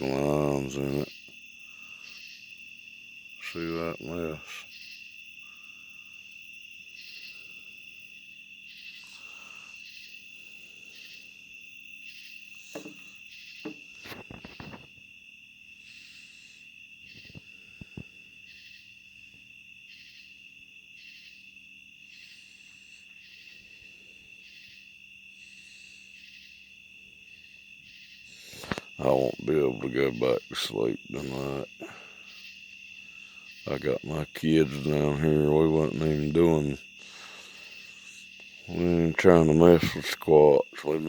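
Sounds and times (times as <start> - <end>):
crickets trilling: 0.0 - 41.0
insect calling in a pulse: 0.0 - 41.0
knocks and rustles: 12.7 - 15.0.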